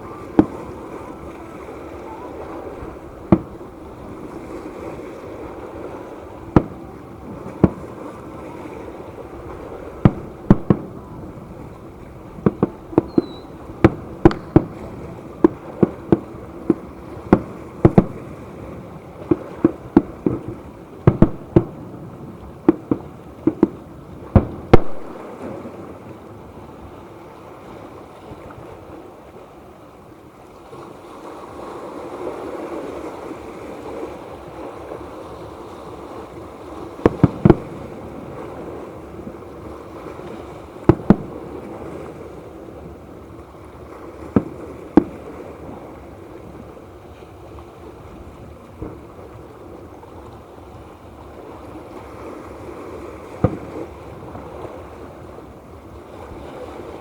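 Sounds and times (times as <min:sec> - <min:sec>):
fireworks bursting with bangs: 0:00.0 - 0:26.1, 0:36.6 - 0:47.4, 0:52.0 - 0:56.9.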